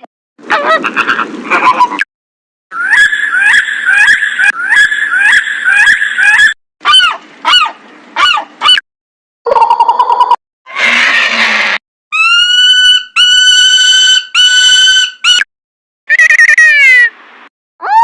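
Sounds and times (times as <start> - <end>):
long swooping bird calls: 2.7 - 8.8, 12.2 - 15.4.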